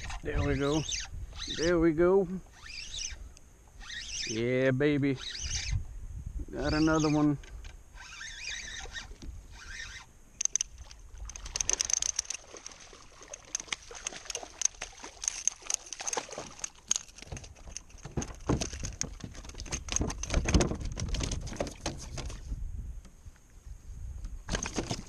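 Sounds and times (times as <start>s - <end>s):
water splashing around a kayak: 10.6s - 22.6s.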